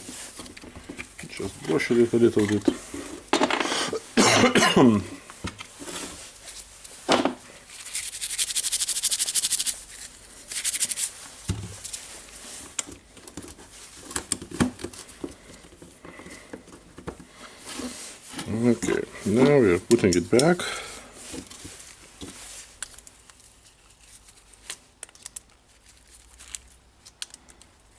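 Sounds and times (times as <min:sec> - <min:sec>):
brush scrubbing plastic: 0:07.7 - 0:12.8.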